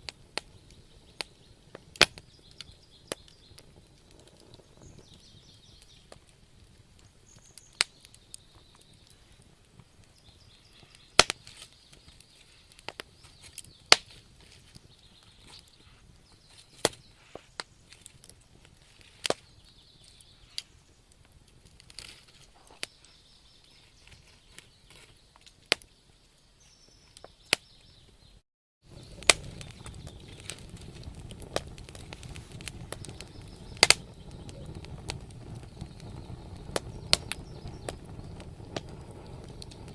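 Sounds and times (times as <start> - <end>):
faint hiss: 0.0 - 25.2
low rumble of flames: 0.0 - 28.0, 28.8 - 39.9
wood fire crackling: 0.0 - 39.9.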